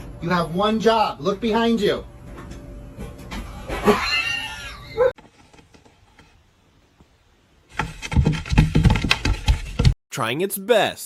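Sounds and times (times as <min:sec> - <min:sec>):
loud clatter of sharp knocks: 0:07.8 - 0:10.0.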